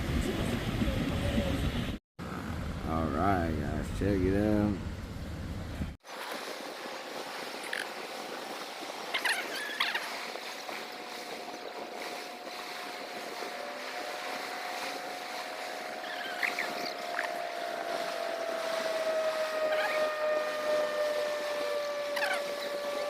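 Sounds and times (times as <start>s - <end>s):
small birds chirping: 16.0s - 17.3s.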